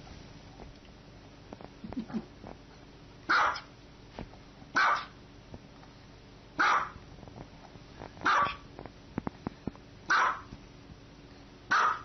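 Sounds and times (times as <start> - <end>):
small dog barking: 3.3 - 3.7, 4.7 - 5.2, 6.6 - 7.0, 8.2 - 8.6, 10.1 - 10.5, 11.7 - 12.0.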